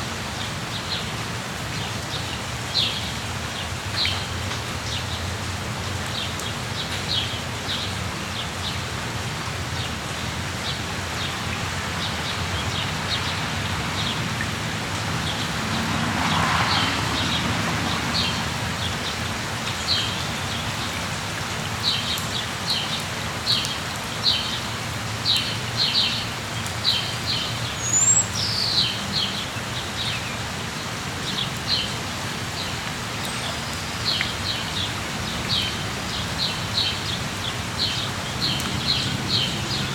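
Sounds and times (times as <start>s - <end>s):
steady rain: 0.0s - 39.9s
small birds chirping: 25.3s - 29.4s, 32.6s - 39.9s.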